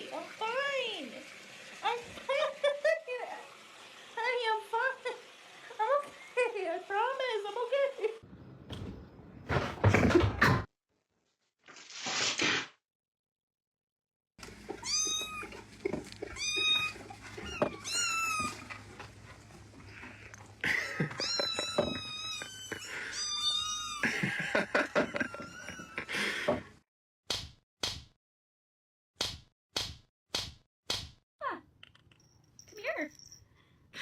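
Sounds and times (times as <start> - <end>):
cat meowing: 14.8 - 15.6, 16.3 - 18.7, 21.1 - 24.0.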